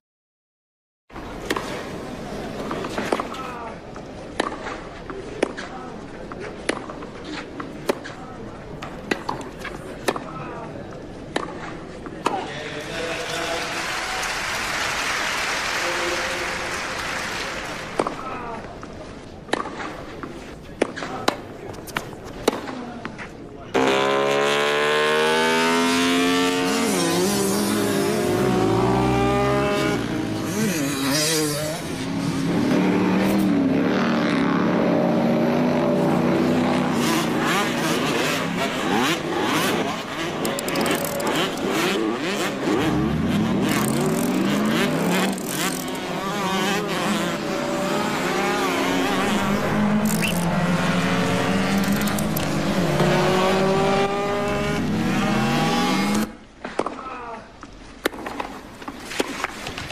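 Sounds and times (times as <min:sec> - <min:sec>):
race car engine revving: 0:23.8 - 0:56.4.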